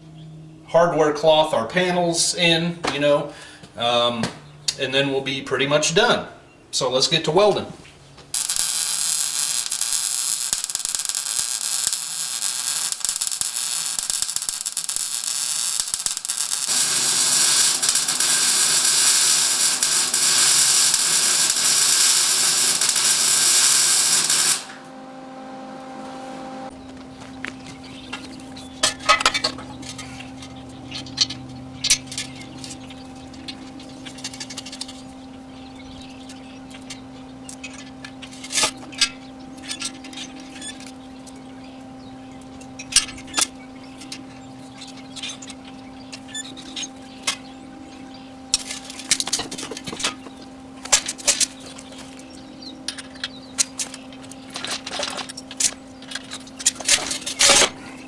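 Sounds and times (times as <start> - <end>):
steady hum: 0.0 - 58.0
welding crackling bursts: 8.2 - 35.4, 48.3 - 57.8.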